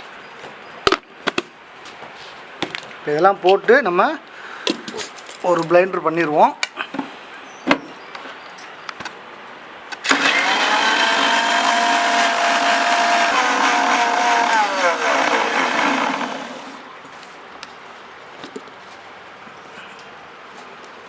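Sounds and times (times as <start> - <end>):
electric mixer grinder whining: 10.0 - 16.8.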